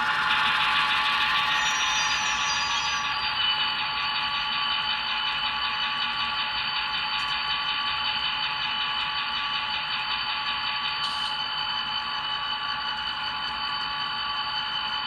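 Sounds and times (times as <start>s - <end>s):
diesel drone: 0.0s - 3.8s
high whining tones: 0.0s - 3.8s.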